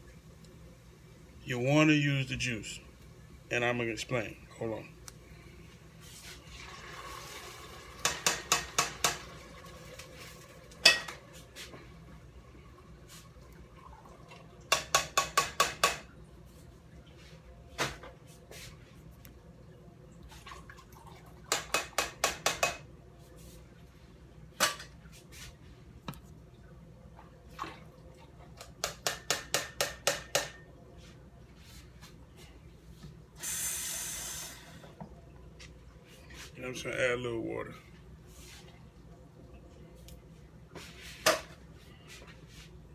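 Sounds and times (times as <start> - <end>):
water rushing from a tap: 6.5 - 10.8
metal kitchenware clinking: 10.8 - 11.2.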